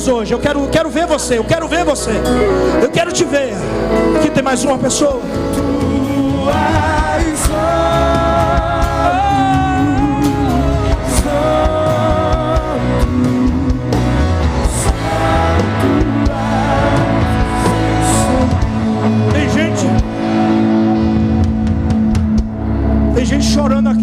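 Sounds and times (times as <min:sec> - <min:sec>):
band playing slow worship music: 0:00.0 - 0:24.0.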